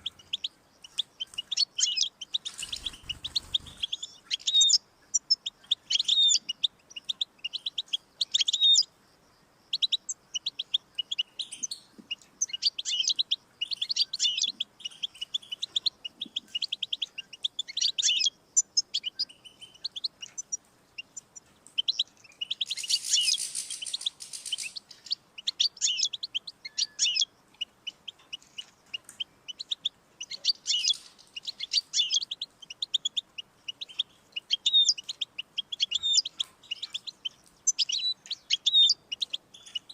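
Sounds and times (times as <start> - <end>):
goldfinch twittering song: 0.0 - 8.9, 9.6 - 39.9.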